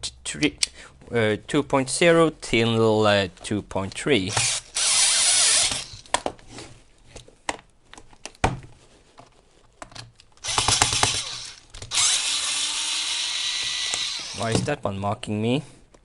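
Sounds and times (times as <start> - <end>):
electric screwdriver driving screws: 4.3 - 6.1, 10.4 - 14.6.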